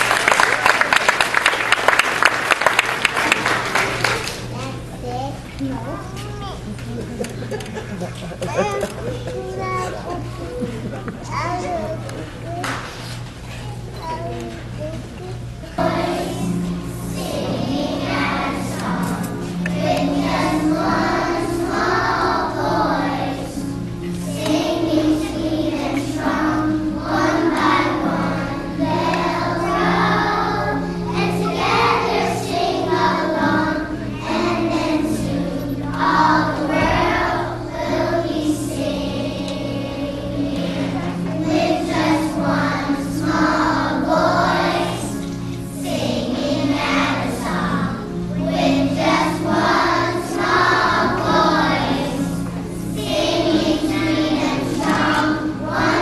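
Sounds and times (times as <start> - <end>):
sustained low accompaniment notes: 0.0 - 12.7, 13.8 - 56.0
choir singing: 15.8 - 56.0.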